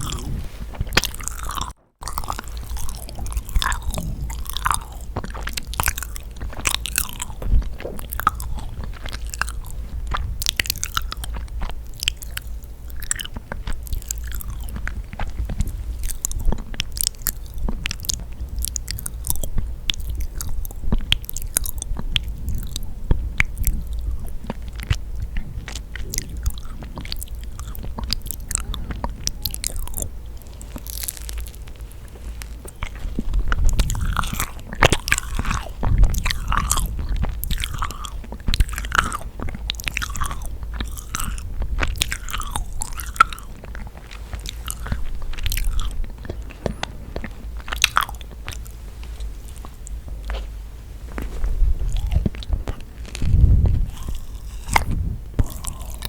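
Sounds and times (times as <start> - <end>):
mouth clicks and smacks: 0.0 - 50.5, 51.1 - 56.0
chewing sticky cookies: 0.0 - 56.0.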